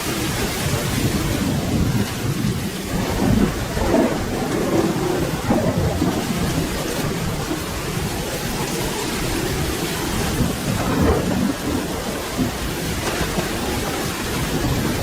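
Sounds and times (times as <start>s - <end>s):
rolling thunder rumble: 0.0s - 15.0s
steady rain falling: 0.0s - 15.0s.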